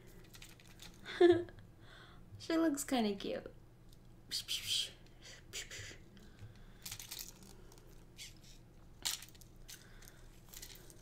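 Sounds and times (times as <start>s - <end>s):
soft rustles of toy: 0.0s - 1.1s, 6.8s - 11.0s.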